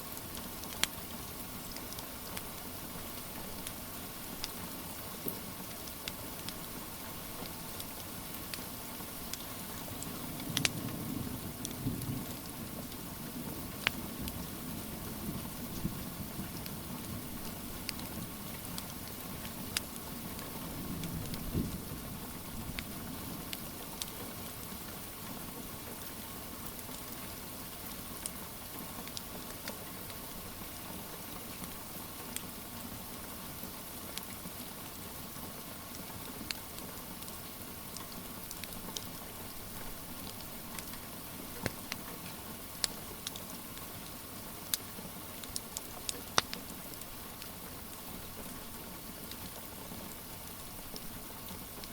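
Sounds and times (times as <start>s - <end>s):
steady rain falling: 0.0s - 51.9s
wood fire crackling: 0.1s - 32.7s, 33.3s - 51.9s.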